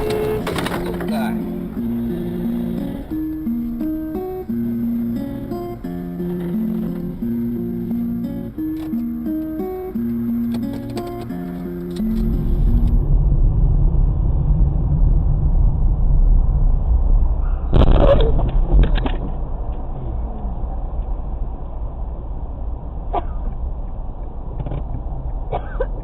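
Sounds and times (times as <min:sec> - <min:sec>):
brief loud noise: 0:00.0 - 0:03.2
acoustic guitar music: 0:00.0 - 0:13.1
car interior driving rumble: 0:00.0 - 0:26.0.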